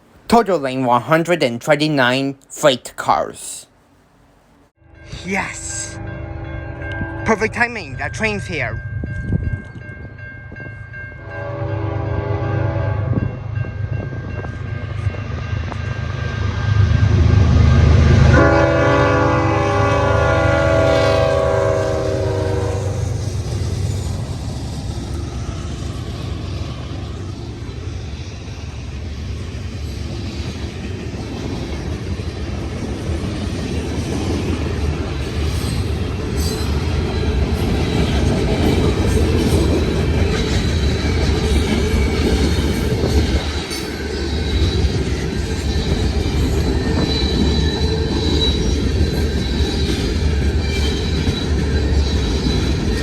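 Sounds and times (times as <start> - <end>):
train air horn blasts: 4.8 - 7.5, 11.2 - 13.4, 18.2 - 23.2.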